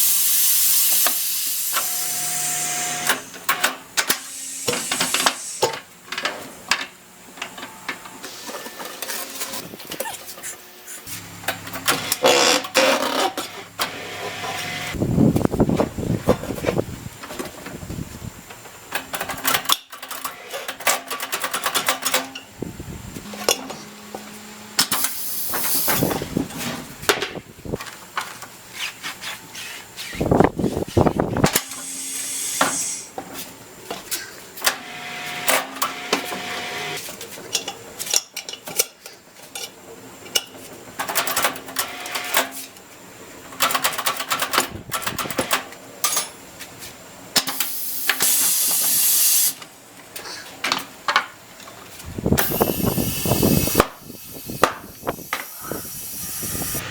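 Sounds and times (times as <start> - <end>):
compressed air hissing: 4.2 - 5.7, 24.9 - 26.4, 30.2 - 33.1, 52.4 - 56.9
metal tools clanking: 23.2 - 25.6.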